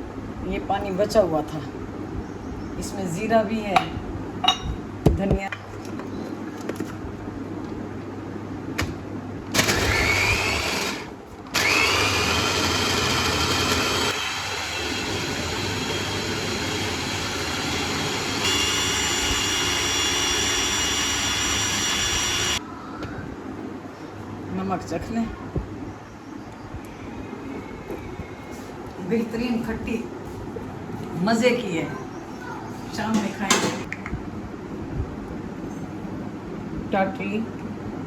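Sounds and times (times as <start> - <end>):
mixer-grinder motor whining: 9.5 - 22.6.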